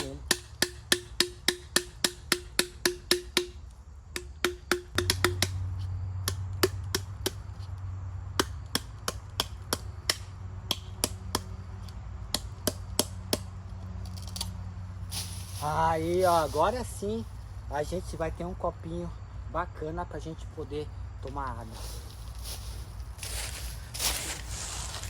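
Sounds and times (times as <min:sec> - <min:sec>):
blade chopping bamboo: 0:00.0 - 0:05.6, 0:06.2 - 0:07.6, 0:08.4 - 0:11.5, 0:12.3 - 0:13.5
low steady hum: 0:00.0 - 0:25.0.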